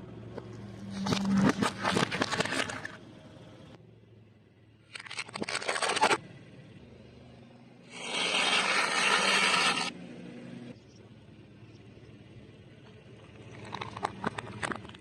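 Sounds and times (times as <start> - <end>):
loud scraping: 7.9 - 9.9.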